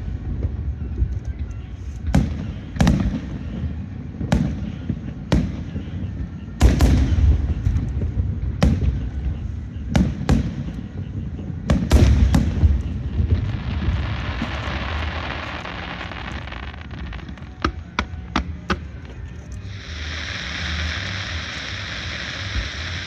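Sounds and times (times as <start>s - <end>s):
low rumble: 0.0s - 4.2s, 6.6s - 23.0s
fireworks bangs: 0.0s - 23.0s.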